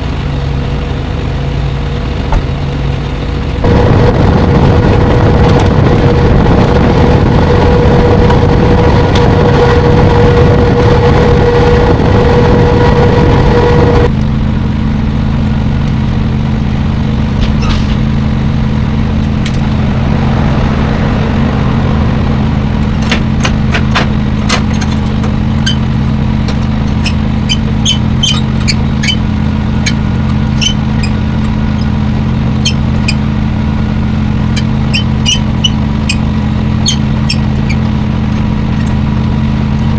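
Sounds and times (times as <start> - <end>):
diesel truck engine running: 0.0 - 39.9
short high squeaks and ticks: 26.8 - 32.0, 32.6 - 33.2, 34.5 - 39.0.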